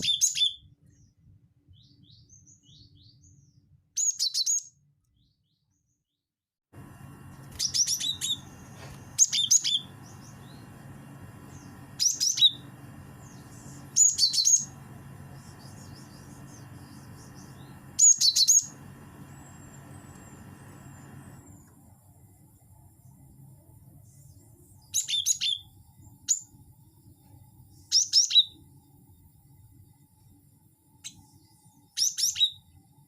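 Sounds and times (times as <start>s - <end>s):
faint steady hum: 6.7s - 33.0s
bird song high repeated notes: 7.5s - 20.8s.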